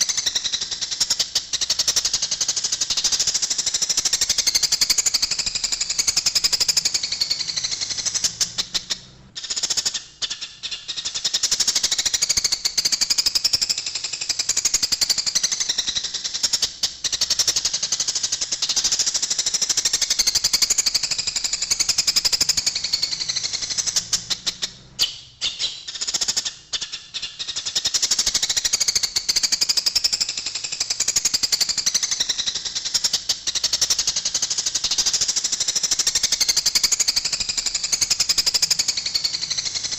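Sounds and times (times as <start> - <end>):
sparrows chattering harshly: 14.4 - 30.1, 30.9 - 39.9.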